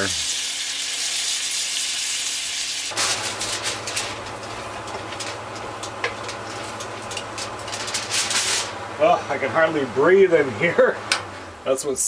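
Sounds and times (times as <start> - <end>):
mushrooms sizzling in a frying pan: 0.0 - 7.7
aluminium foil crinkling: 2.9 - 8.8
steady low hum: 3.0 - 12.0.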